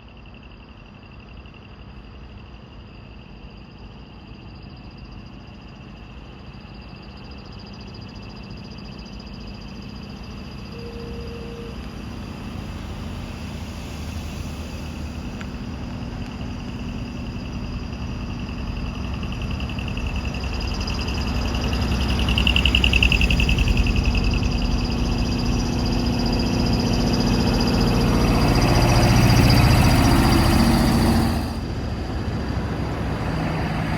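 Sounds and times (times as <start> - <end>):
insects chirring: 0.0 - 33.9
faint tone: 8.0 - 12.6
truck engine rumbling: 9.6 - 33.9.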